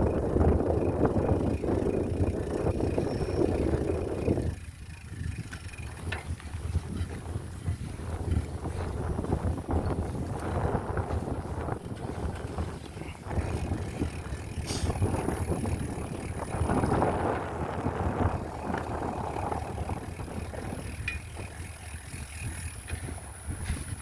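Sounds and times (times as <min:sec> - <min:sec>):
bike rattling and ticking: 0:00.0 - 0:24.0
wind buffeting microphone: 0:00.0 - 0:24.0.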